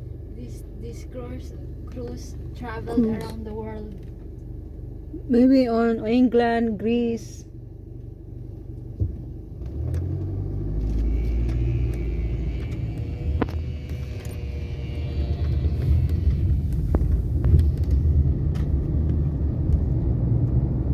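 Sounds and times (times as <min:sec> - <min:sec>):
vehicle engine rumbling: 0:00.0 - 0:20.9.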